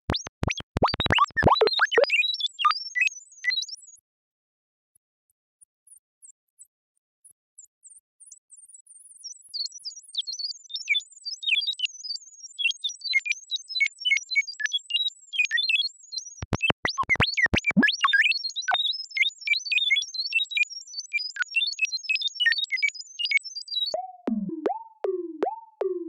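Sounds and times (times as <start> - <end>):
robot beeps and chirps: 0.0 - 2.3, 16.4 - 18.3
sharp clicks: 16.4 - 17.9.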